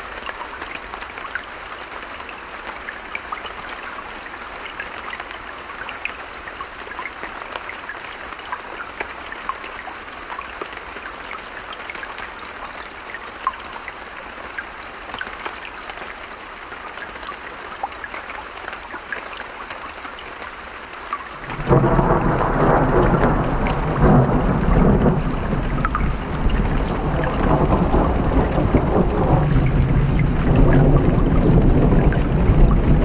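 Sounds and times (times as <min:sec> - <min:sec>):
steady rain: 0:00.0 - 0:33.0
thunder rumble: 0:21.5 - 0:33.0.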